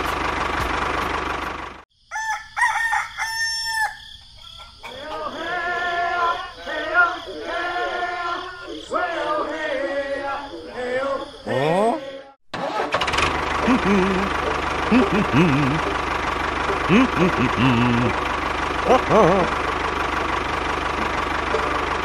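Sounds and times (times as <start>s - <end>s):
tractor engine running: 0.0s - 1.8s, 12.6s - 22.0s
rooster crowing: 2.0s - 8.4s.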